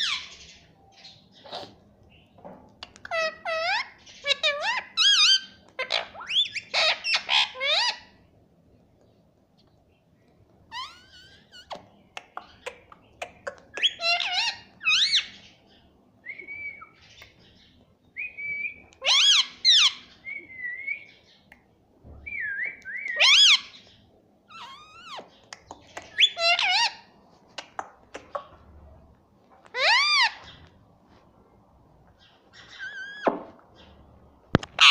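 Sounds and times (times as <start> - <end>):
parakeet squawks: 3.1 - 8.1, 13.8 - 15.4, 19.0 - 20.0, 26.2 - 28.5, 29.7 - 30.6, 34.6 - 34.9.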